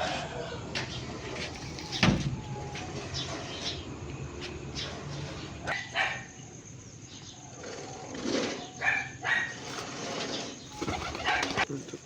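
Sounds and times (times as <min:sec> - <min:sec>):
dog barking: 0:05.7 - 0:06.4, 0:08.8 - 0:09.6.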